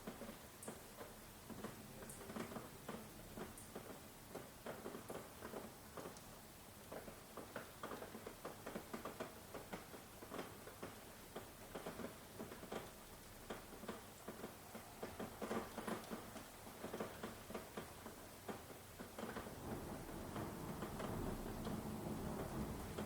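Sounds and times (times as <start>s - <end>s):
raindrops tapping: 0.1s - 23.0s
rain hiss: 5.9s - 23.0s.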